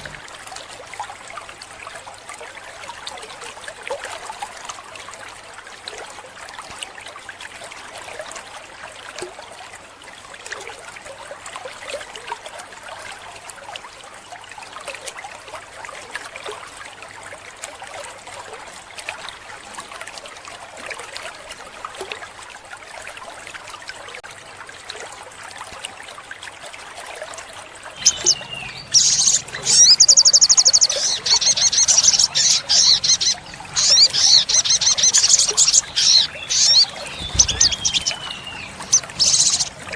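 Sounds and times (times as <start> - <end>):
water trickling: 0.0 - 39.9
bird trilling song: 28.0 - 39.8.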